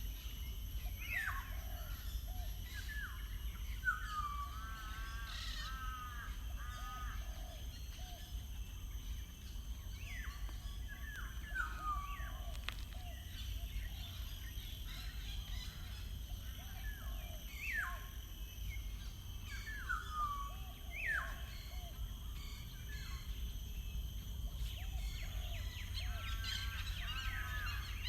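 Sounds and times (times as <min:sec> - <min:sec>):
birds calling: 0:09.1 - 0:18.0.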